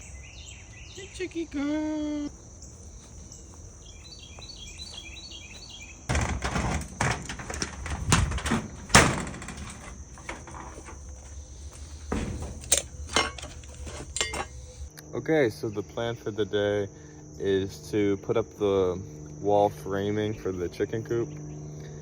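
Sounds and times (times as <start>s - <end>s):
small bird chirping: 0.0s - 6.1s
crickets chirring: 0.0s - 22.0s
loud rustling: 6.1s - 14.9s.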